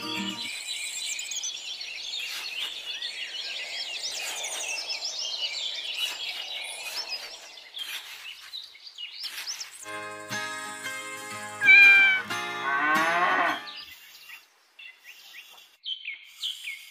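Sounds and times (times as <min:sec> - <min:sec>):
small birds chirping and twittering: 0:00.0 - 0:16.9.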